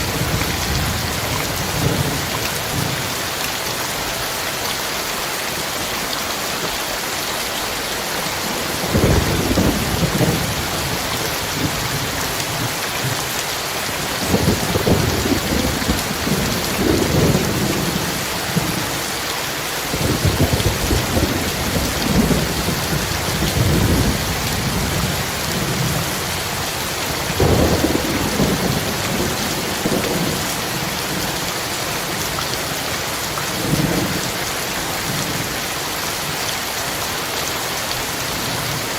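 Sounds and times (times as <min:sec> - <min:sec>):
heavy rain: 0:00.0 - 0:38.9
thunder rumbling: 0:08.6 - 0:13.2, 0:14.0 - 0:19.0, 0:19.9 - 0:31.5.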